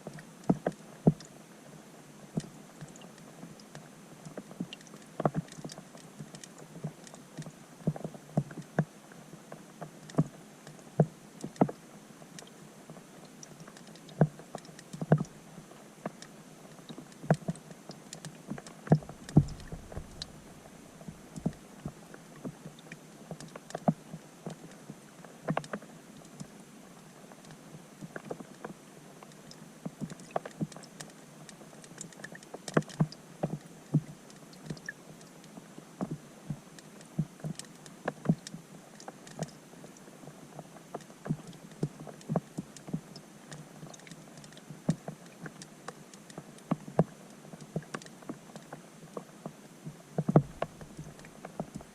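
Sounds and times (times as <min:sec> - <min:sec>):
rain heard underwater: 0:00.0 - 0:51.9
raindrops ticking and popping: 0:09.5 - 0:24.7, 0:50.2 - 0:51.9.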